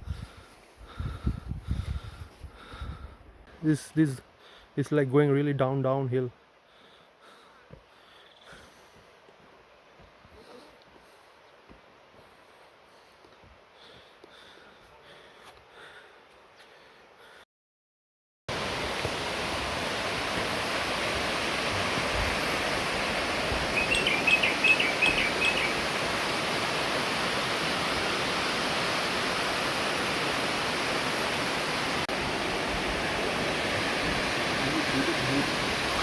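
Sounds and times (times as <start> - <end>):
waterfall roaring: 18.5 - 36.0
high bird chirps: 23.7 - 25.8.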